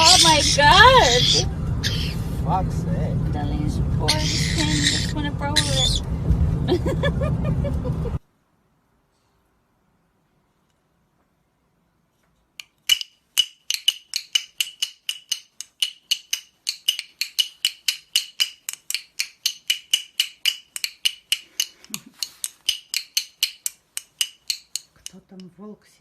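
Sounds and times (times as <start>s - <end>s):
rapid tapping on ringing object: 12.9s - 25.1s.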